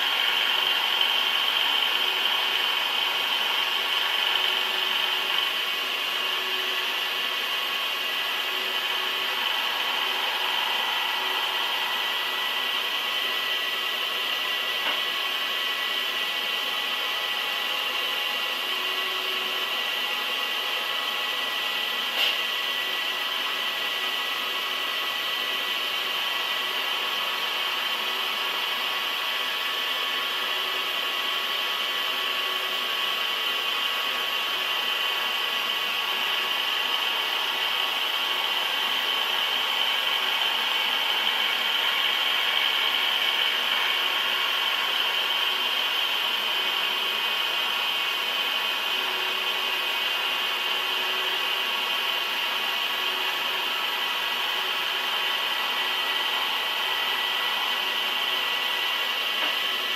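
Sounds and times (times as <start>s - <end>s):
thin whining tones: 0.0s - 24.7s
metal-cutting machine noise: 0.0s - 59.9s.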